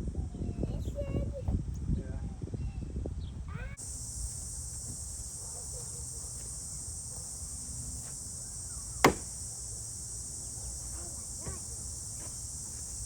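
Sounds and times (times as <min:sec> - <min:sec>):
insects chorus: 0:03.7 - 0:13.0
sharp knock: 0:09.0 - 0:09.4.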